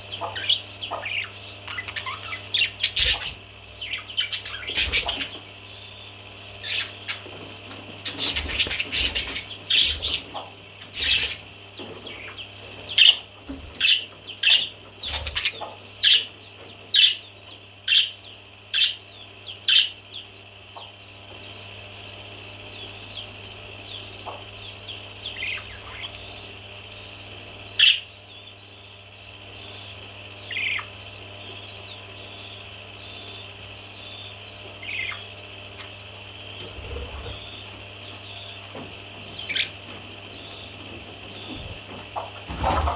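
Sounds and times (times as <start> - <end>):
background chirping: 0.0 - 7.4, 22.3 - 42.9
baby parrots calling: 0.2 - 5.5, 6.6 - 7.3, 8.0 - 11.5, 12.1 - 16.3, 25.2 - 26.4, 30.4 - 30.9, 34.0 - 35.9, 39.4 - 39.8.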